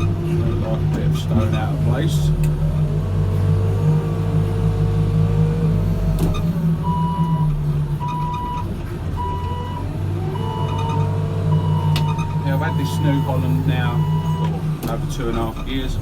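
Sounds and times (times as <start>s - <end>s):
diesel engine running: 0.0s - 16.0s
reversing alarm beeping: 6.4s - 14.6s.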